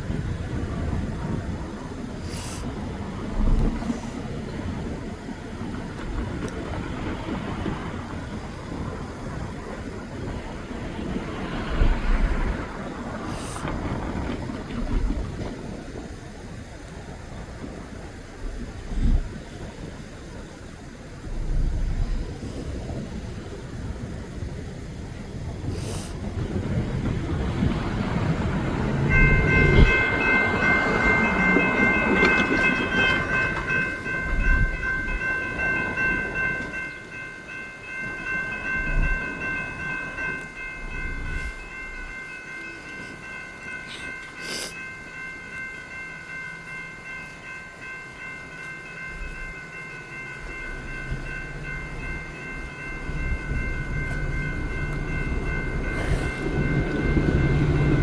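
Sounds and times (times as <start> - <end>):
train rumble: 0.0 - 58.0
steady high ringing tones: 27.7 - 58.0.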